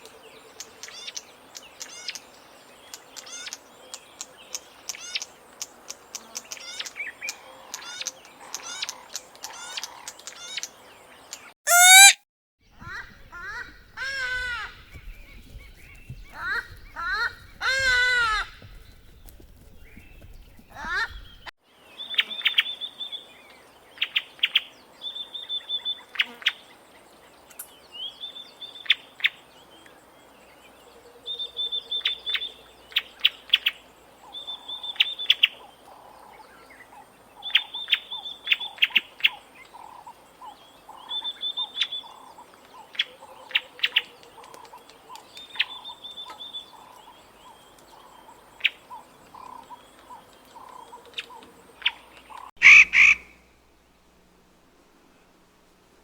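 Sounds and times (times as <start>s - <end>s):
bird calling: 11.7s - 12.2s, 12.8s - 21.5s, 37.4s - 53.5s
faint rapid pulsing: 12.8s - 21.5s.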